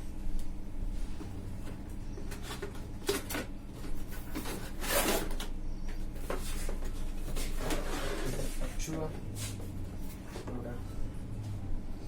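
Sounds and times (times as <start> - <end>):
steady low hum: 0.0 - 12.0
scrapes rustles and light knocks: 6.1 - 10.7.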